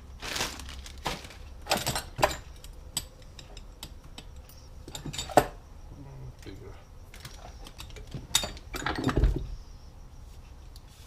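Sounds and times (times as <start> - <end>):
small bolts clinking: 1.5 - 5.6, 6.4 - 9.5.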